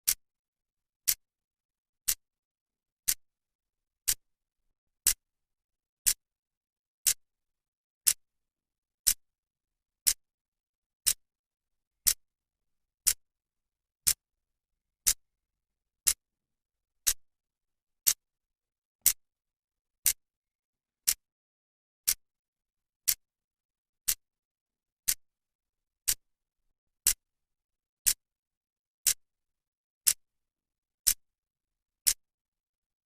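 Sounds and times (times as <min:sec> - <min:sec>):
clock ticking: 0:03.0 - 0:03.2, 0:04.0 - 0:04.2, 0:10.0 - 0:10.2, 0:16.0 - 0:16.2, 0:21.0 - 0:21.3, 0:26.0 - 0:26.2, 0:32.0 - 0:32.2.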